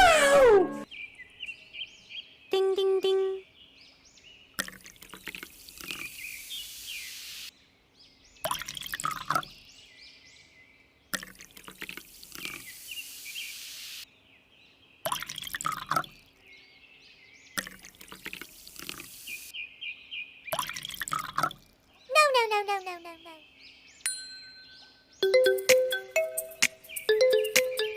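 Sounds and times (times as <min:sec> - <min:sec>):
water splashing and pouring: 0:04.6 - 0:06.8, 0:08.5 - 0:09.6, 0:11.2 - 0:13.4, 0:15.1 - 0:16.3, 0:17.6 - 0:19.5, 0:20.6 - 0:21.8.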